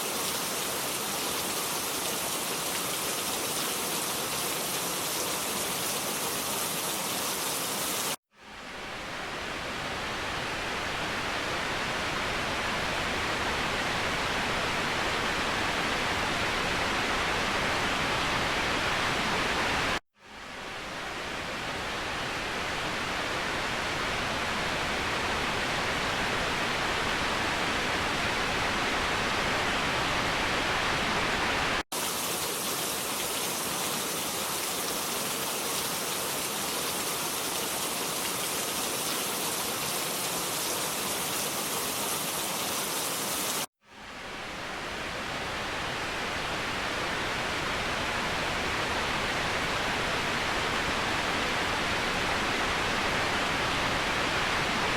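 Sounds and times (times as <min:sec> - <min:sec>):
waterfall rushing: 0:32.0 - 0:43.7.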